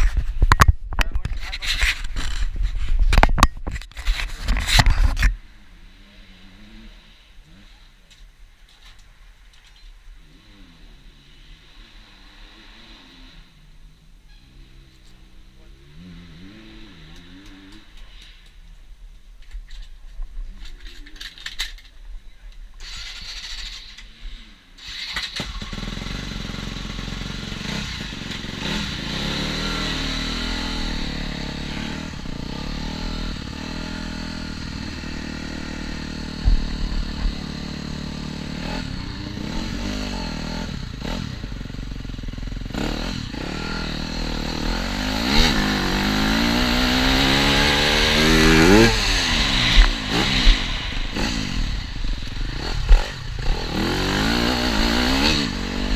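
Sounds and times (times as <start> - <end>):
motocross bike engine revving: 5.6 - 7.8, 10.2 - 18.4, 22.8 - 55.9.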